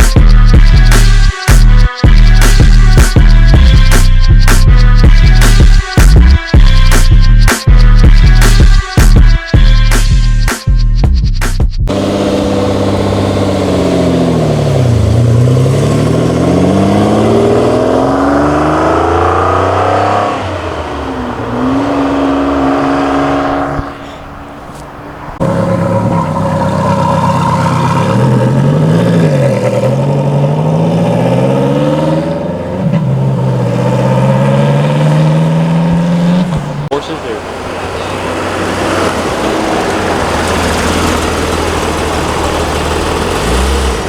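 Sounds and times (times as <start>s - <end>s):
car engines revving: 11.9s - 44.0s.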